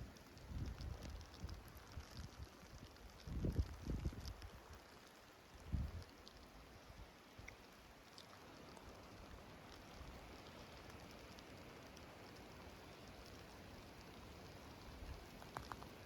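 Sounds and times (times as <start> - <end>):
faint outdoor hiss: 0.0 - 16.0
small ticks: 0.0 - 16.0.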